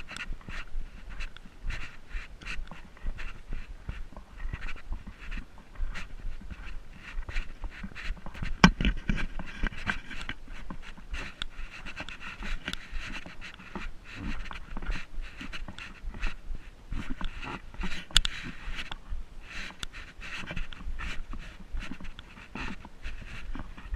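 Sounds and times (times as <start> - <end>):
footsteps crunching on stony trail: 0.0 - 23.9
heavy panting breath: 0.0 - 23.9.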